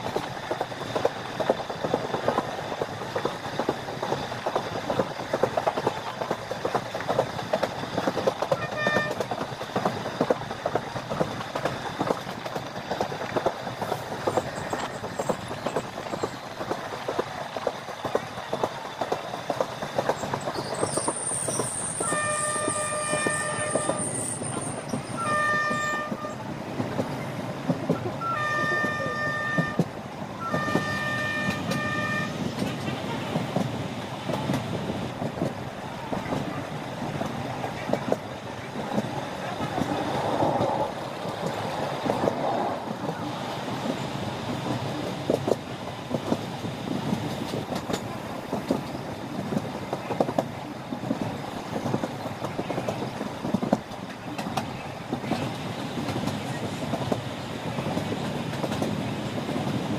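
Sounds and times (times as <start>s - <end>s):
train wheels clickety-clack: 0.0s - 59.9s
train horn blasts: 8.5s - 9.3s, 22.0s - 24.2s, 25.1s - 26.4s, 28.2s - 32.4s.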